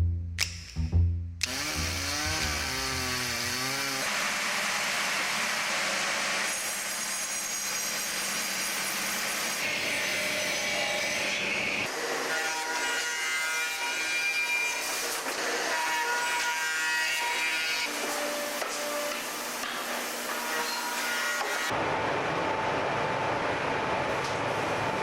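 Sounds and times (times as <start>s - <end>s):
woodworking machinery whirring: 1.4s - 16.0s.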